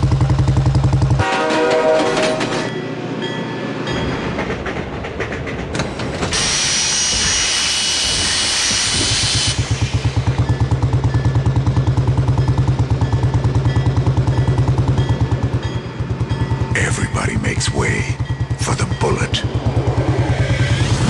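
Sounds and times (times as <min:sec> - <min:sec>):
single-cylinder motorcycle engine thumping: 0:00.0 - 0:01.2
train clattering: 0:00.0 - 0:21.0.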